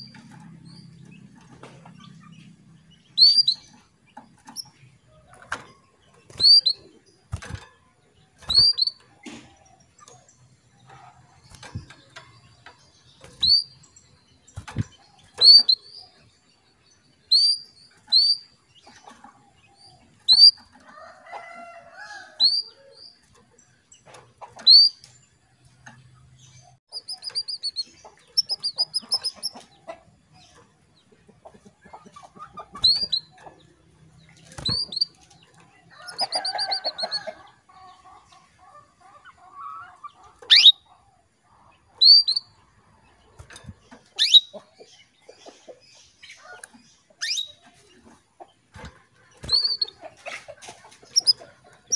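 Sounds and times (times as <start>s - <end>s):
canary calling: 26.9s - 30.0s, 35.9s - 41.0s, 44.2s - 44.8s, 49.4s - 50.5s.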